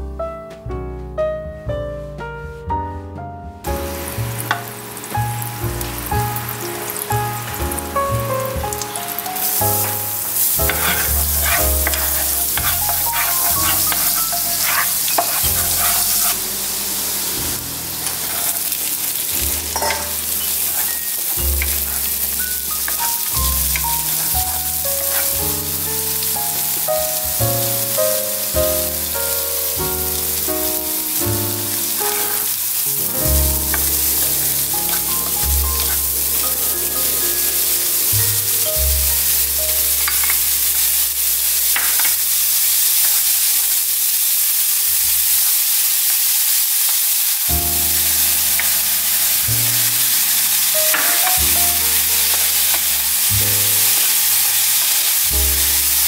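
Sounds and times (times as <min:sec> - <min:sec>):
soft melody: 0:00.0 - 0:42.4, 0:47.4 - 0:56.0
corn sizzling in butter: 0:03.7 - 0:56.0
wooden spatula stirring: 0:08.9 - 0:16.6, 0:18.0 - 0:26.9, 0:33.4 - 0:41.0.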